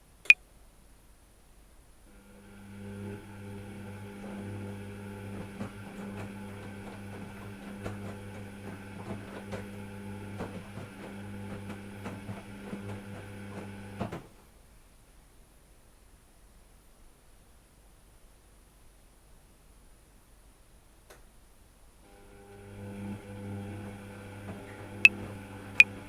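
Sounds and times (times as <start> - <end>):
washing machine motor hum: 2.2 - 14.4, 22.1 - 26.0.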